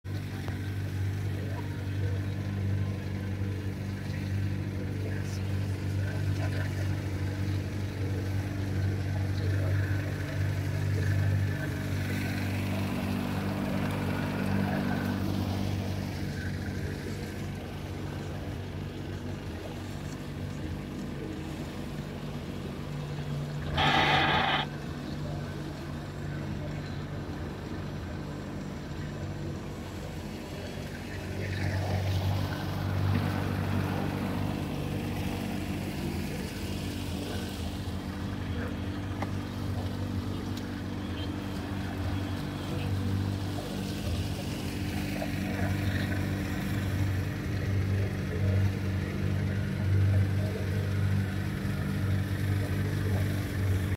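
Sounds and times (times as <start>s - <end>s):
boat engine running: 0.0s - 53.9s
short loud burst: 23.6s - 24.7s.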